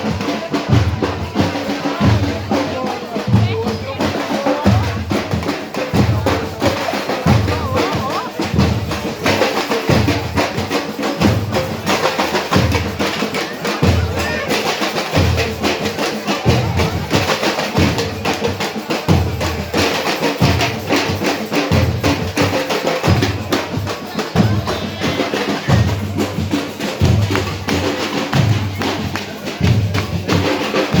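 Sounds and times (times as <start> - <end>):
carnival drumming: 0.0 - 31.0.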